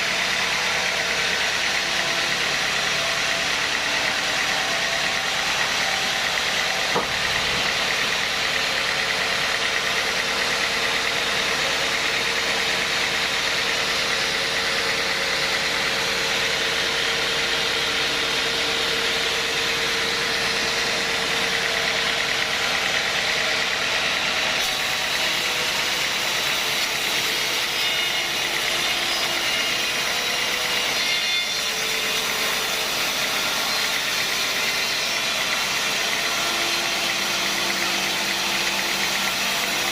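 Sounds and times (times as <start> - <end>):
sawmill machinery running: 0.0 - 39.9
brief knock: 6.9 - 7.6.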